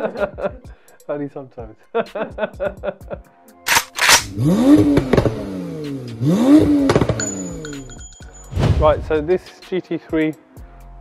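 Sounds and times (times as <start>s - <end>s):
car engine revving: 4.1s - 8.0s.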